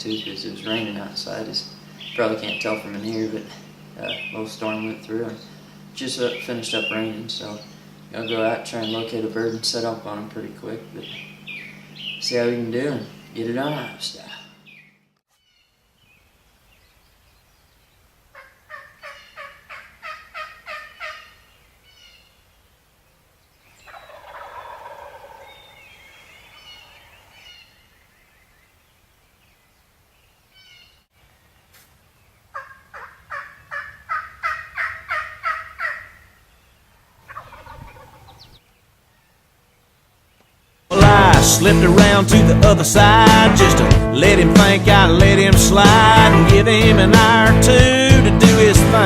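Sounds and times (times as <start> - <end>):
soft rough turkey call: 18.3 - 21.4, 23.9 - 25.7, 32.5 - 36.4, 37.2 - 38.5
turkey gobbling: 18.3 - 21.5, 23.9 - 27.6, 32.5 - 36.4, 37.0 - 38.6.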